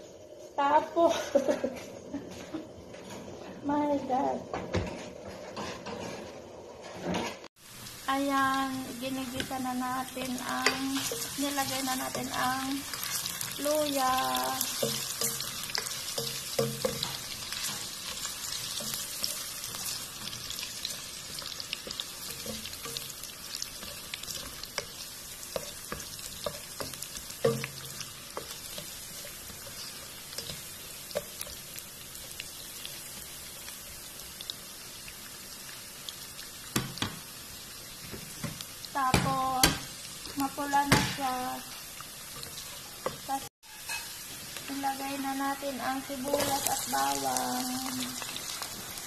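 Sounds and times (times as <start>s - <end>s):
ginger sizzling in oil: 7.5s - 49.0s.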